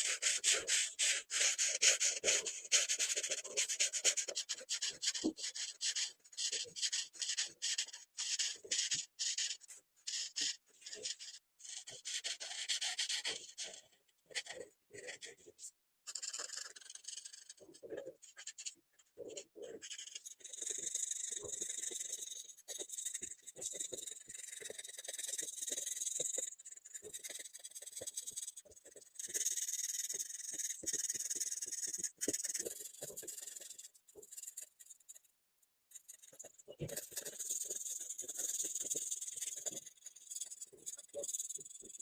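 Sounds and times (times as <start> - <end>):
felt-tip markers rubbing on paper: 19.8 - 35.2, 35.9 - 42.0.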